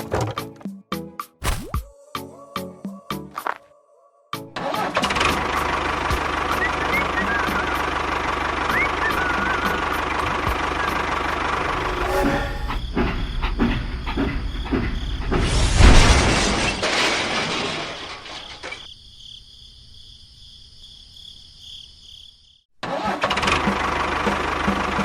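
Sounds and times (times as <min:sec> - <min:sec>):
loud rushing noise: 0:11.6 - 0:12.9.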